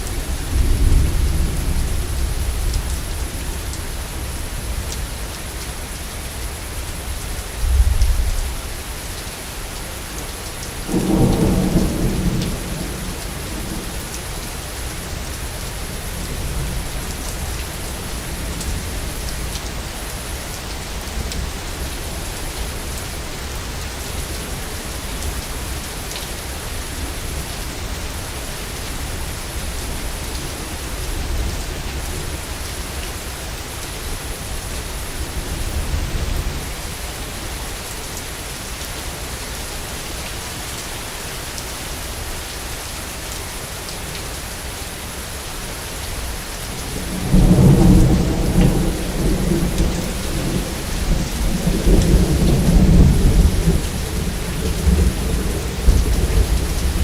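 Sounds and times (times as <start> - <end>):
steady rain: 0.0 - 57.0
distant rolling thunder: 10.9 - 15.1, 46.9 - 57.0.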